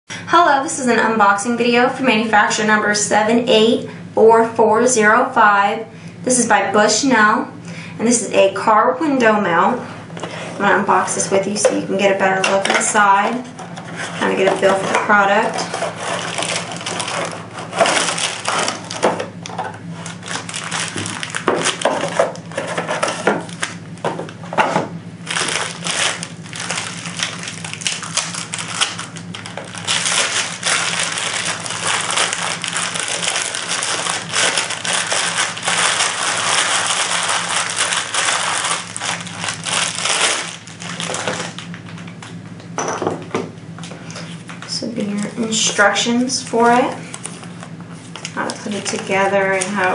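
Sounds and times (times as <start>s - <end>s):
packaging rustling and crinkling: 13.0s - 42.2s, 46.6s - 49.9s.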